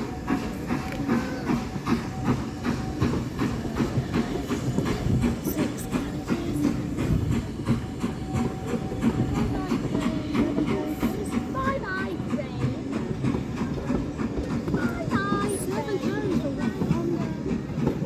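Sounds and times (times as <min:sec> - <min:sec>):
railway carriage rumbling: 0:00.0 - 0:18.0
wheels clicking over rail joints: 0:00.0 - 0:18.0.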